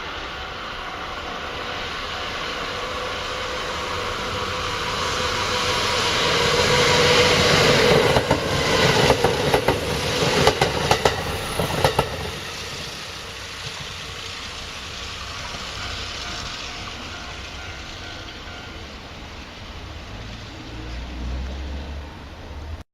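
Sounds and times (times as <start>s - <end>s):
electric train passing: 0.0s - 22.8s
wheels clicking over rail joints: 4.4s - 19.1s.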